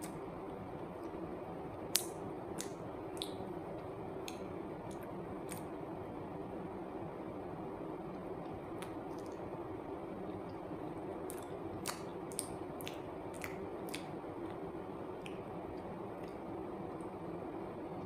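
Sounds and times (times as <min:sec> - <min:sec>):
steady room hum: 0:00.0 - 0:18.0
wet chewing smacks and clicks: 0:01.9 - 0:03.5, 0:04.2 - 0:05.7, 0:08.8 - 0:09.4, 0:11.3 - 0:14.6, 0:15.2 - 0:16.4.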